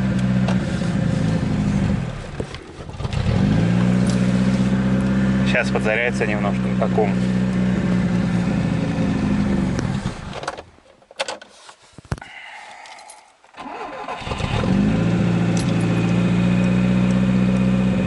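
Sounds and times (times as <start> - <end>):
car engine running and stalling: 0.0 - 10.7, 13.5 - 18.0.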